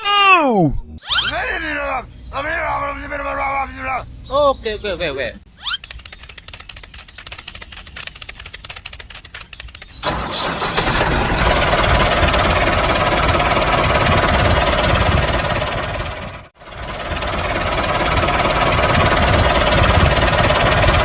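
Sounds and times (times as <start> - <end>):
small engine cranking: 5.7 - 12.0
small engine running loudly: 10.6 - 21.0.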